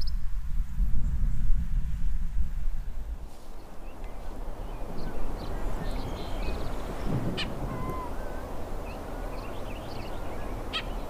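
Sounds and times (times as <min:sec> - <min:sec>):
low background hiss: 0:00.0 - 0:11.0
harsh bird calls: 0:04.6 - 0:11.0.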